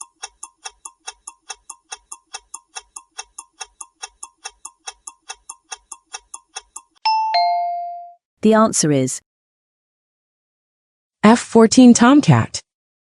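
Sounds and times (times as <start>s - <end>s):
countdown timer ticking: 0.0s - 8.2s.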